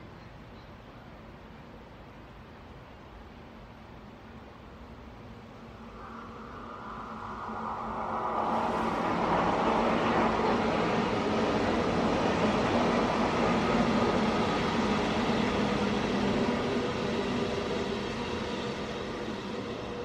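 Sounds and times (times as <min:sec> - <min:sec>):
train running on track: 0:00.0 - 0:20.0
faint hum: 0:05.0 - 0:11.4.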